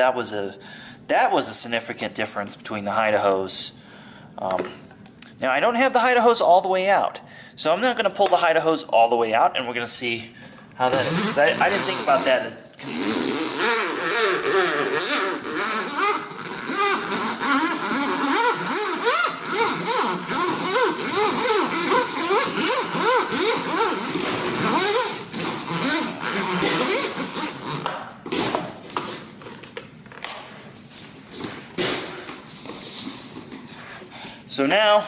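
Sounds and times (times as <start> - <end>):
vacuum hose rasping and squeaking: 10.9 - 28.5.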